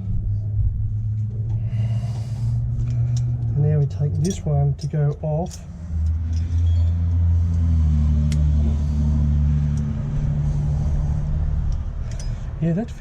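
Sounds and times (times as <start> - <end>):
low engine rumble: 0.0 - 13.0
light metallic clicks: 2.8 - 7.7.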